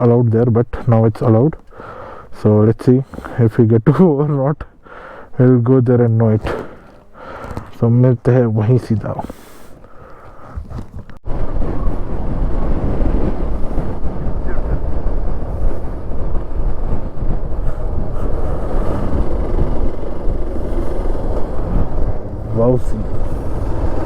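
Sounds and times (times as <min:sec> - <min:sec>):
wind buffeting microphone: 0:06.1 - 0:24.0
motorcycle engine running: 0:11.7 - 0:24.0.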